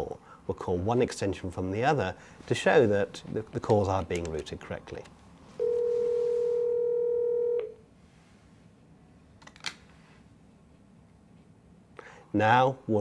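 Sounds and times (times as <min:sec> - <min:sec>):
phone ringback tone: 0:05.6 - 0:07.8.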